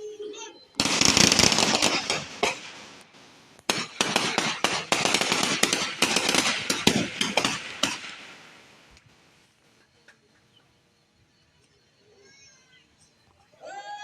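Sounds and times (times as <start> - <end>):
rifles firing in rapid succession: 0.8 - 9.2.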